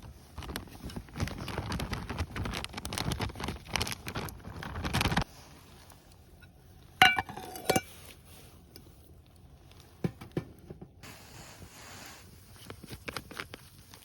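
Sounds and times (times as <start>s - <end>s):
tableware clinking: 7.0s - 7.9s.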